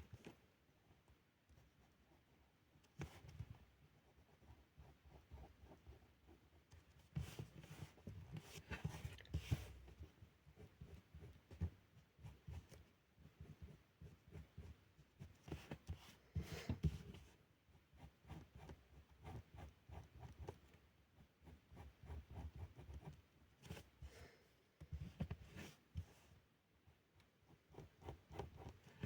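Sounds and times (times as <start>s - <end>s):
felt-tip pen drawing on paper: 27.5s - 29.0s.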